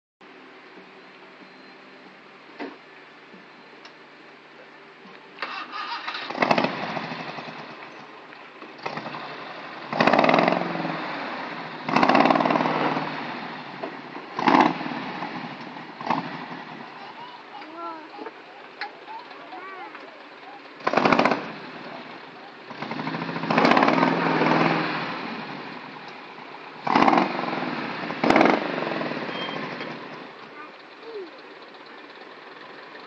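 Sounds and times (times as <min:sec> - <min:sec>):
car engine starting and revving: 0:05.4 - 0:17.2, 0:20.3 - 0:33.0.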